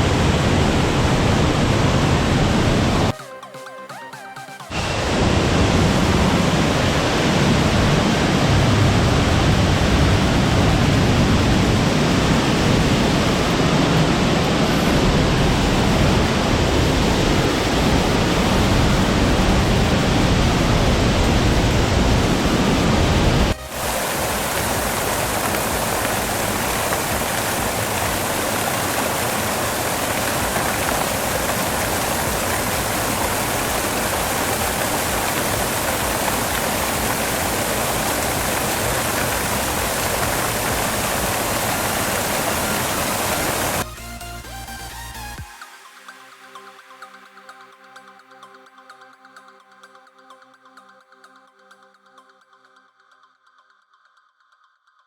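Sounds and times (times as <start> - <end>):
waterfall rushing: 0.0 - 3.2, 4.2 - 43.9.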